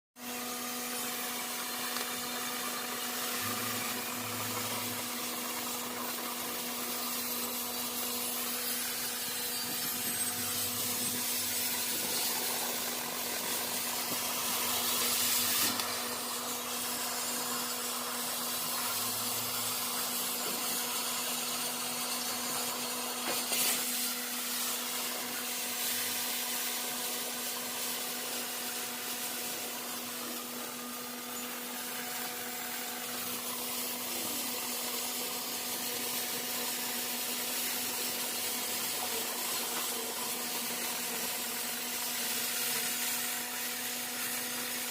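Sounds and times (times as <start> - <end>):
machine hum: 0.2 - 23.2
cutting torch hissing: 0.2 - 44.9.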